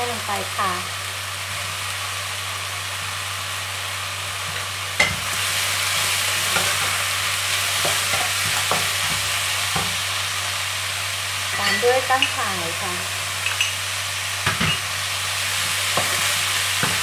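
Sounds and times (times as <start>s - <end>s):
food sizzling in a wok: 0.0s - 17.0s
spatula scraping wok: 4.3s - 10.3s, 11.4s - 12.4s, 14.4s - 17.0s.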